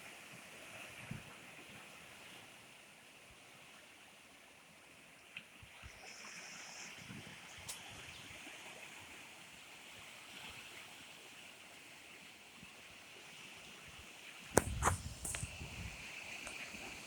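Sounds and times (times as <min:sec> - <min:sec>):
light rain hiss: 0:04.2 - 0:17.0
sharp click: 0:14.6 - 0:15.5.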